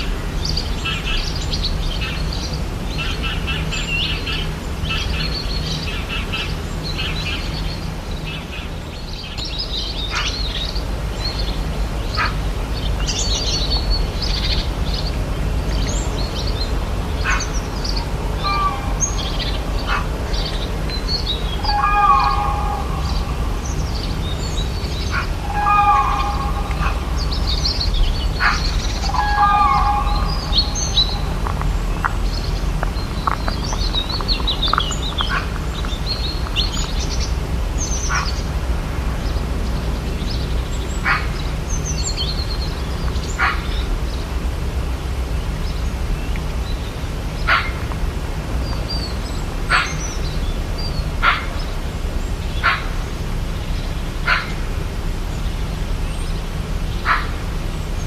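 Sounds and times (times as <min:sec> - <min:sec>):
birds chirping and trilling: 0:00.0 - 0:58.0
steady low rumble: 0:00.0 - 0:58.0
sharp bird call notes: 0:21.2 - 0:31.4.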